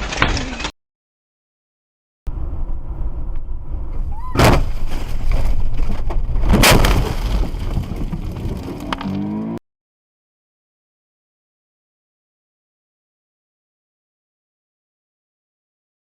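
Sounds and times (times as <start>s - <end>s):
road and engine rumble: 2.3s - 9.6s
loud bangs: 4.3s - 5.3s, 6.4s - 8.8s
engine revving: 8.8s - 9.6s.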